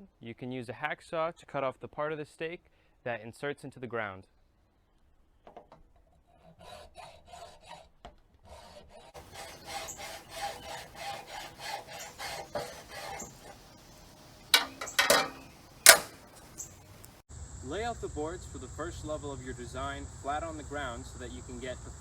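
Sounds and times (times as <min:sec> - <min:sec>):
hacksaw cutting: 0:09.2 - 0:17.2
sharp clacks: 0:09.2 - 0:17.2.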